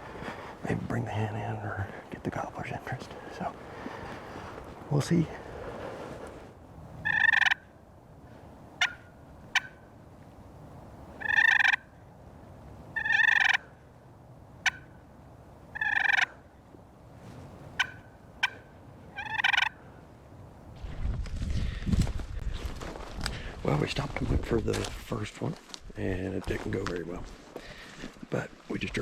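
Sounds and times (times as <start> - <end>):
turkey call clucks: 7.0 - 7.7, 8.8 - 9.8, 11.2 - 11.9, 13.0 - 13.7, 14.6 - 15.0, 15.7 - 16.4, 17.8 - 19.8
turkey call rolling purrs: 7.0 - 7.7, 12.9 - 13.7, 15.7 - 16.4, 17.8 - 19.8.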